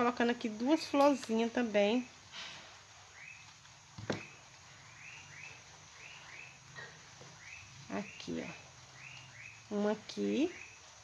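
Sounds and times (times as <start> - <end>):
bird chirping: 3.0 - 11.0.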